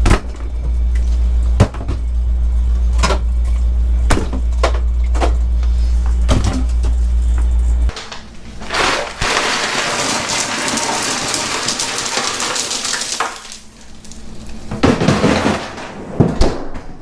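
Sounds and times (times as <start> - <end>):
low engine drone: 0.0 - 7.9.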